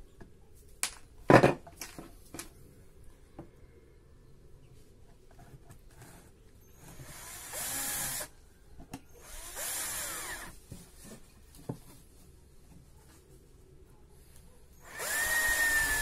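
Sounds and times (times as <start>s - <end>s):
power drill motor: 6.8s - 8.3s, 9.2s - 10.5s, 14.8s - 16.0s.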